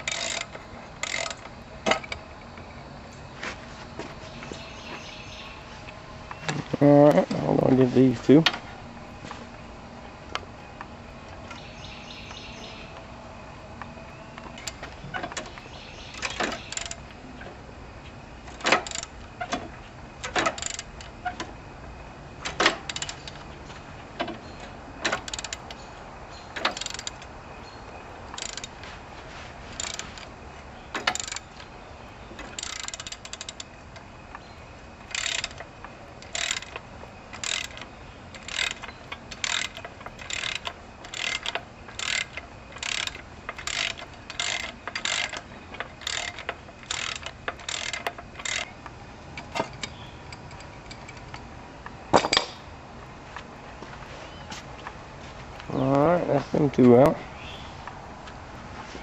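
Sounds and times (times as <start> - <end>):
ratchet wrench clicking: 0.0 - 2.1, 16.2 - 17.0, 18.6 - 19.1, 20.2 - 21.1, 22.9 - 23.4, 25.1 - 25.8, 26.6 - 27.3, 28.3 - 28.8, 29.8 - 30.3, 31.0 - 31.5, 32.5 - 33.7, 35.1 - 48.7.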